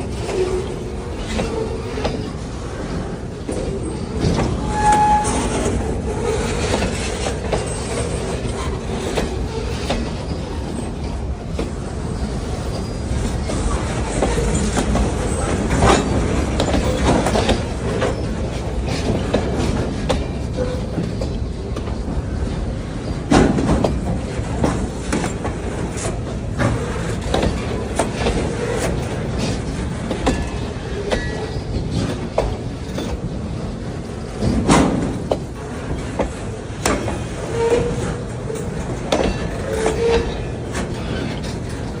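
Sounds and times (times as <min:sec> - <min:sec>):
freight train rumbling past: 0:00.0 - 0:42.0
wheels clacking over rail joints: 0:00.0 - 0:42.0
faint wheel squeal: 0:03.5 - 0:08.7, 0:12.2 - 0:16.1, 0:30.3 - 0:32.0.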